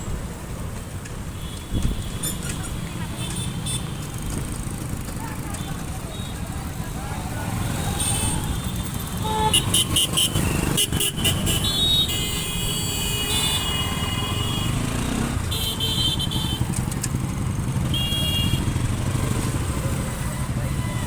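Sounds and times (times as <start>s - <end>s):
motorcycle engine and road rumble: 0.0s - 21.0s
vehicle horns honking: 1.3s - 4.1s, 7.6s - 16.8s, 17.7s - 19.1s.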